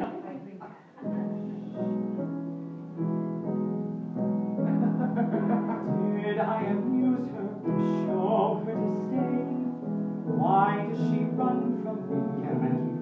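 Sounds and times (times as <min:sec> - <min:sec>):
piano chords: 0:01.0 - 0:13.0
man singing: 0:05.4 - 0:13.0.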